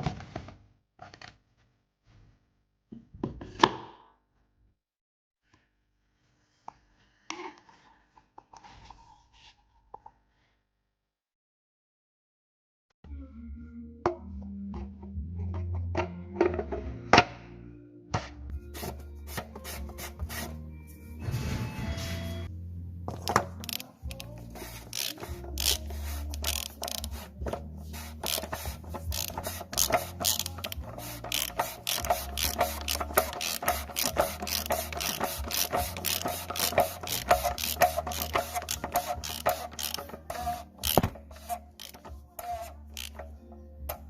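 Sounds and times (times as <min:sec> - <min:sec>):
socket ratchet clicking: 0:23.3 - 0:27.6, 0:28.2 - 0:43.3.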